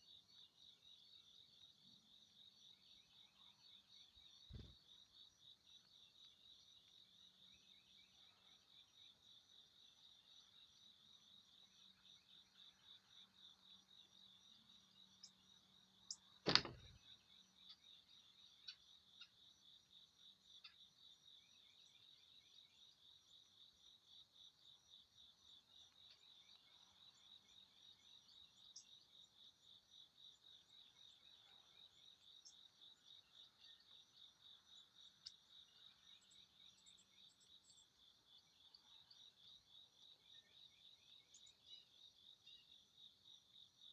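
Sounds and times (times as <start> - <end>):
faint chirps: 0.0 - 11.0
sharp click: 16.5 - 16.9.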